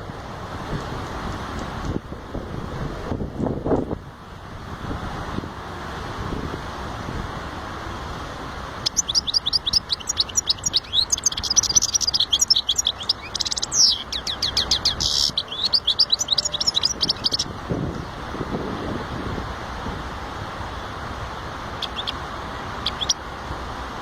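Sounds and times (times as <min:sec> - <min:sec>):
steady background hiss: 0:00.0 - 0:24.0
finch twittering and trilling: 0:08.8 - 0:17.5, 0:21.8 - 0:22.2, 0:22.8 - 0:23.2.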